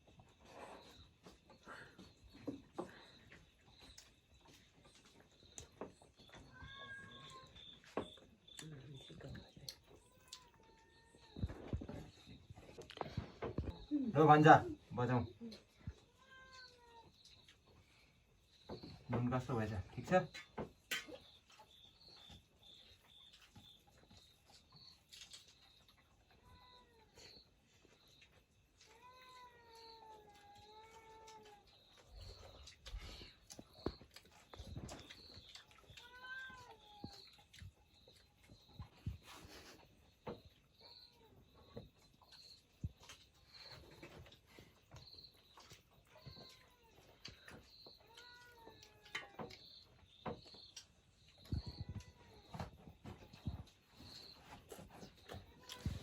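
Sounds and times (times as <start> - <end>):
faint cat meow: 6.3 - 7.9, 10.0 - 12.0, 15.4 - 17.2, 26.3 - 27.4, 28.8 - 31.8, 35.8 - 37.4, 46.2 - 49.6, 51.4 - 52.8, 55.3 - 56.0.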